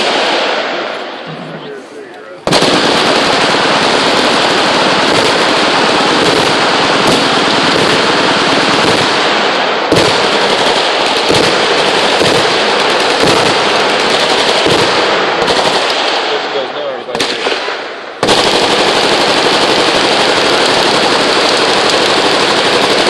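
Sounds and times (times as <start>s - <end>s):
machine guns firing: 0.0s - 0.9s, 2.4s - 23.0s
sharp loud gunshot report: 15.9s - 18.0s.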